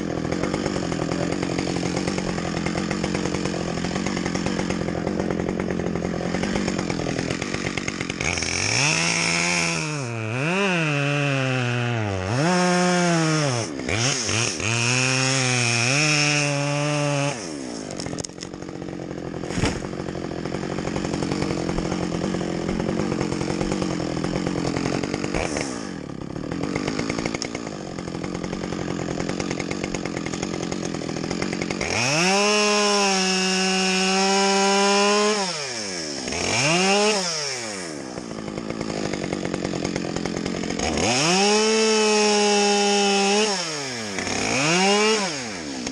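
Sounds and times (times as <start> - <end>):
chainsaw revving and cutting: 0.0 - 45.9
sharp knock: 19.5 - 19.8.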